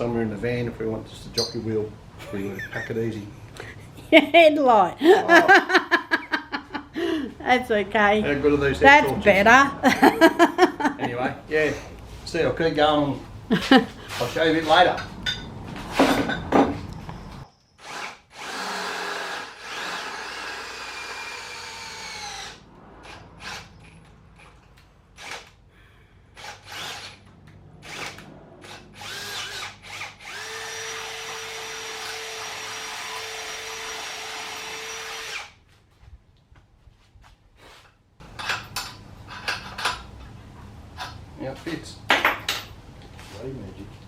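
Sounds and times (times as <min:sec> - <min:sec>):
power drill drilling metal: 0:17.8 - 0:24.6, 0:25.2 - 0:25.6, 0:26.4 - 0:35.6.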